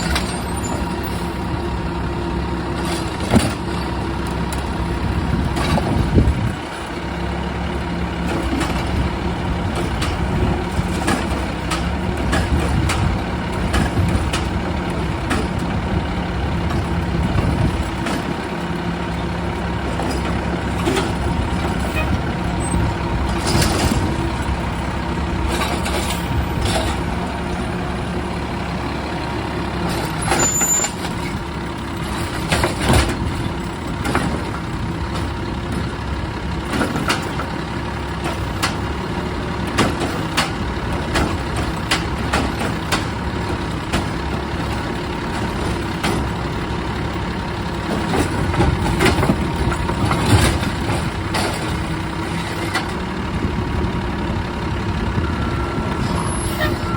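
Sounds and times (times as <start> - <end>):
garbage truck engine running: 0.0 - 56.9
equipment clanks and knocks: 9.7 - 15.8, 32.1 - 35.4.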